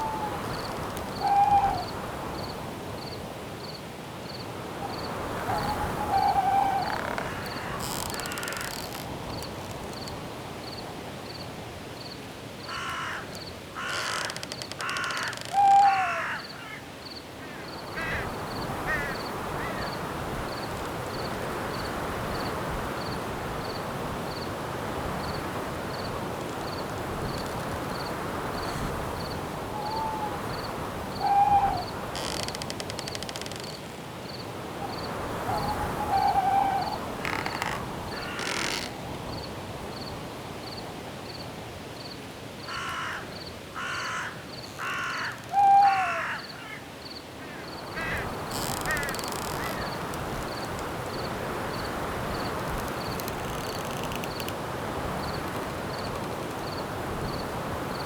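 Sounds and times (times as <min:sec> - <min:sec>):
owl calls: 0:00.0 - 0:02.0, 0:04.8 - 0:08.8, 0:12.7 - 0:16.9, 0:18.9 - 0:19.9, 0:29.7 - 0:32.5, 0:34.8 - 0:39.0, 0:43.8 - 0:50.1
wind hiss: 0:00.0 - 0:15.3, 0:16.2 - 0:45.6, 0:46.2 - 0:58.0
cricket chirping: 0:00.0 - 0:15.4, 0:25.2 - 0:41.4, 0:46.4 - 0:58.0
harsh caw-like bird calls: 0:05.6 - 0:08.9, 0:12.7 - 0:20.0, 0:35.6 - 0:39.0, 0:42.7 - 0:50.0.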